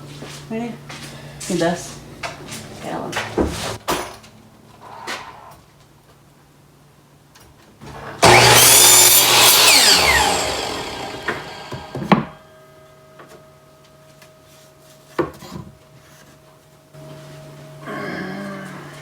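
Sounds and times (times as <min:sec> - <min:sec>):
electric chop saw cutting wood: 0:08.2 - 0:12.4.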